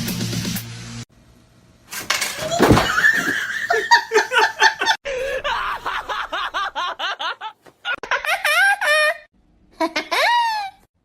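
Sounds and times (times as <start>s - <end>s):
person laughing hard: 2.5s - 10.9s.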